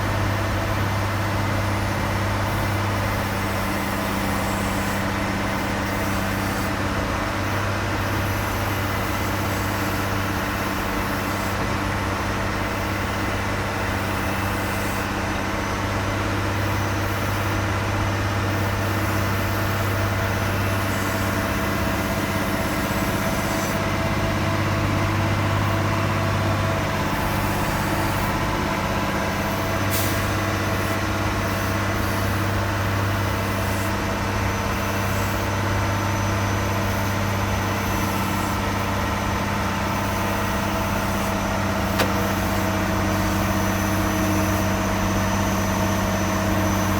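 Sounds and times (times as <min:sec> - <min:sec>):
aircraft and tug engine drone: 0:00.0 - 0:46.9
brief click: 0:41.9 - 0:42.2.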